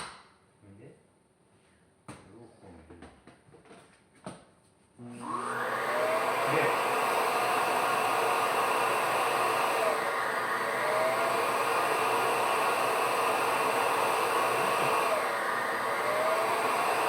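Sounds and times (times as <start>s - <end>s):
vacuum cleaner motor running: 5.1s - 17.0s.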